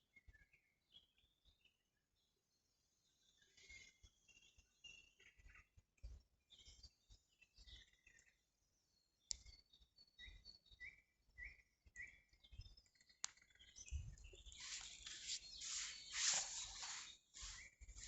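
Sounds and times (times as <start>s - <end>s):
faint bird chirps: 0.0s - 18.0s
rustle: 14.6s - 17.7s.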